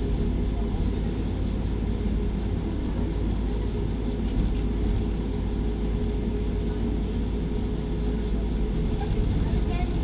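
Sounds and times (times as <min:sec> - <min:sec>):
train running rumble: 0:07.4 - 0:10.0.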